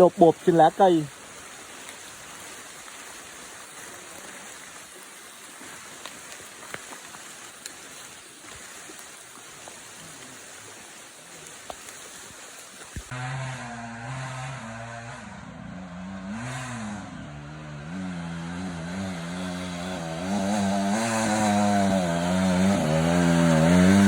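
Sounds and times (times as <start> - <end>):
rain hissing on leaves: 0.0 - 13.1, 19.2 - 24.0.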